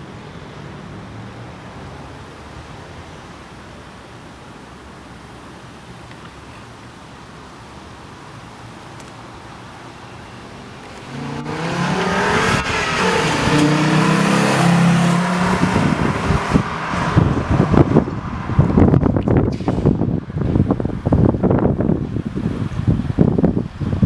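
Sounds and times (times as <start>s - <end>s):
car driving past loudly: 11.0s - 20.0s
wind buffeting microphone: 11.4s - 24.0s.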